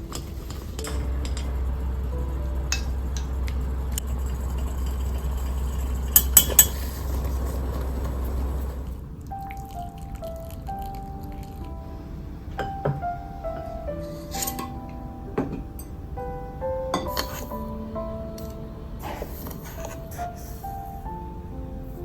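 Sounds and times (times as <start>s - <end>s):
low mechanical hum: 0.0s - 9.4s.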